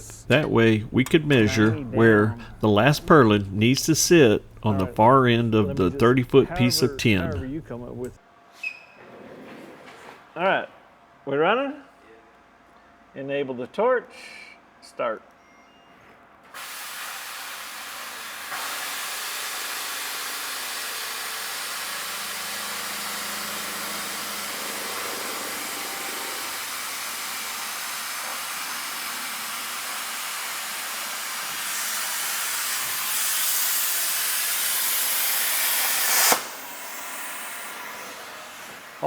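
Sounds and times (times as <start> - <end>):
plasma cutter hissing: 16.6 - 39.0.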